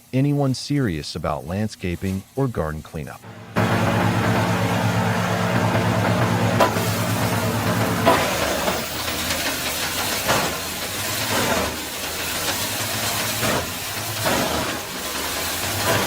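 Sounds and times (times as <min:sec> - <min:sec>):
wood chipper engine running: 0:03.2 - 0:16.0
rough hiss of cutting: 0:08.1 - 0:16.0.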